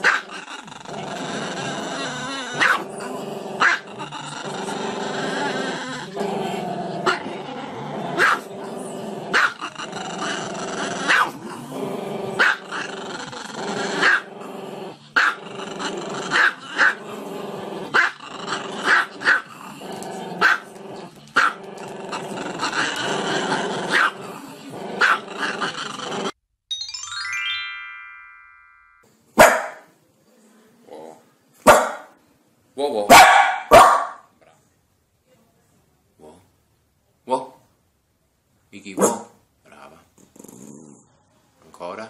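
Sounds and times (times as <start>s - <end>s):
dog barking: 0.0s - 0.2s, 2.6s - 2.8s, 3.6s - 3.8s, 8.2s - 8.5s, 9.3s - 9.6s, 11.1s - 11.4s, 12.4s - 12.6s, 14.0s - 14.2s, 20.4s - 20.6s, 23.9s - 24.1s, 25.0s - 25.2s, 29.4s - 29.9s, 31.6s - 32.2s, 33.1s - 34.3s, 39.0s - 39.4s
dog growling: 0.0s - 26.4s, 40.2s - 41.1s.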